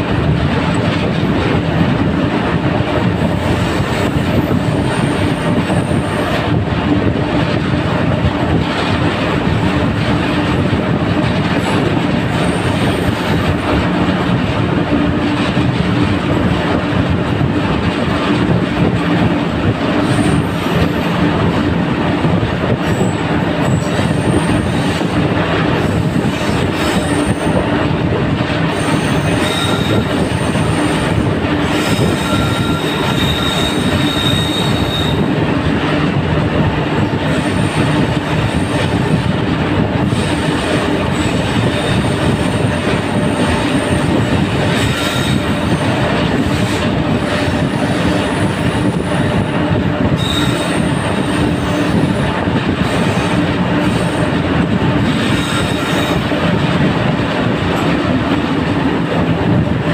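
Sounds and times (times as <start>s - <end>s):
train wheels rumbling on rail: 0.0s - 59.9s
high wheel squeal: 20.0s - 21.1s, 22.8s - 25.0s, 28.7s - 35.3s, 43.2s - 45.8s, 50.1s - 52.2s.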